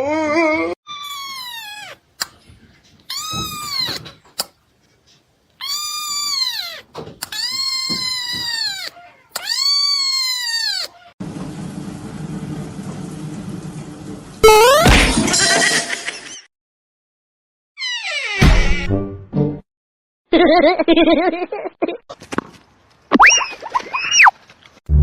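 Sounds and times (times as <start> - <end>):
cat meowing: 1.0 - 2.0, 5.6 - 11.1.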